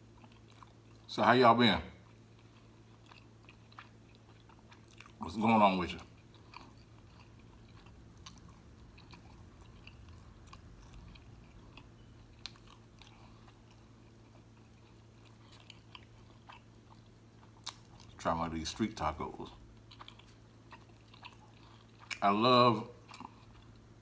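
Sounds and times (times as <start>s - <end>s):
faint chewing with mouth closed: 0.0s - 1.1s, 2.0s - 24.0s
steady low hum: 0.0s - 24.0s.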